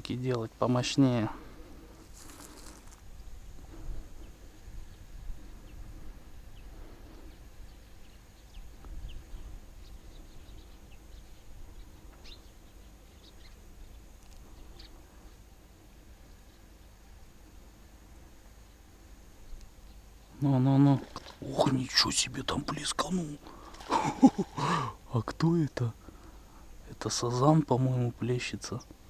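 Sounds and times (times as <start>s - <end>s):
faint bird chirps: 3.1s - 15.5s.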